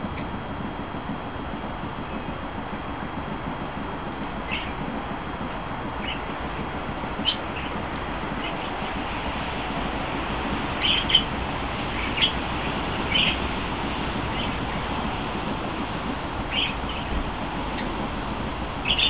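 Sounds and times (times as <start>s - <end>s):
steady hiss: 0.0s - 19.0s
birds chirping: 4.5s - 4.8s, 6.0s - 6.3s, 7.2s - 7.8s, 10.8s - 11.3s, 11.9s - 12.4s, 13.0s - 13.4s, 14.3s - 14.8s, 16.5s - 18.0s.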